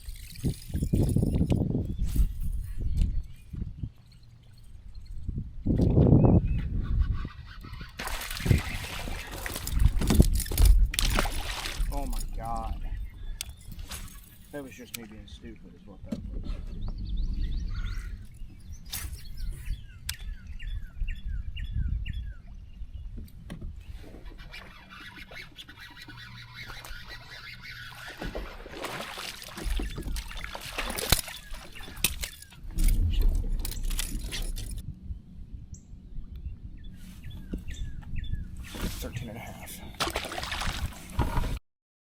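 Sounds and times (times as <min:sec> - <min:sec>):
bird chirping: 0:12.0 - 0:15.0
low rumble: 0:32.6 - 0:36.9.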